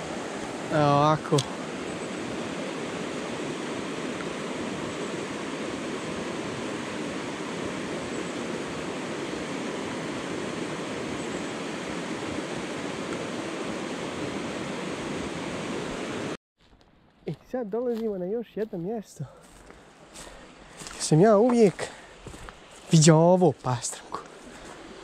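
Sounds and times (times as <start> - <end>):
river rushing: 0.0 - 16.4.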